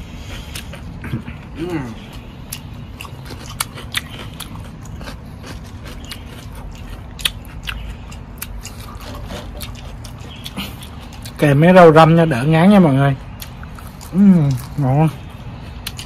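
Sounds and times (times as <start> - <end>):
person chewing: 0.0 - 11.4, 13.2 - 16.0.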